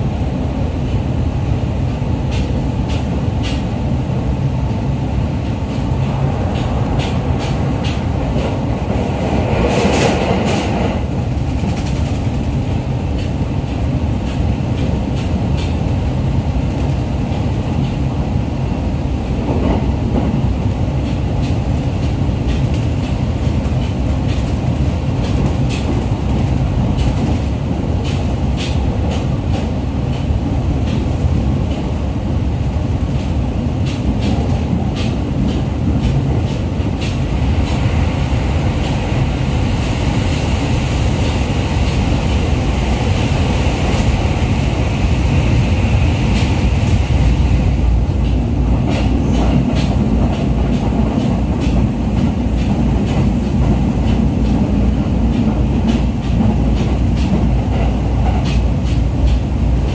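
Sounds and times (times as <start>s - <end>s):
train wheels rumbling on rail: 0.0s - 59.9s
sharp track clicks: 5.4s - 16.0s, 21.0s - 31.9s, 48.1s - 59.9s.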